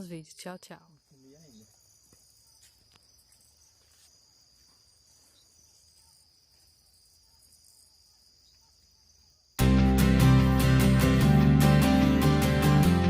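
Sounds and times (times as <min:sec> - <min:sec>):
crickets trilling: 0:00.0 - 0:09.6
loud music: 0:09.6 - 0:13.0.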